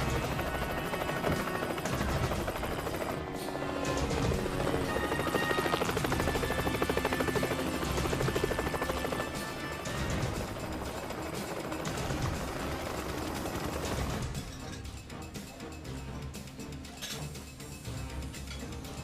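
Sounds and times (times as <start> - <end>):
helicopter rotor chop: 0.0 - 14.6
dramatic film score: 0.0 - 19.0.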